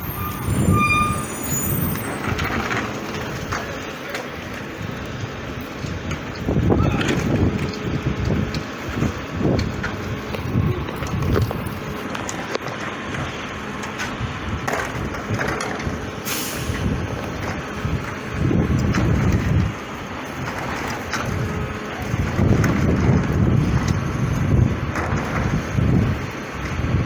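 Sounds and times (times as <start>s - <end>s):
garbage truck engine rumbling: 0.0s - 27.0s
hissing air burst: 16.2s - 17.0s.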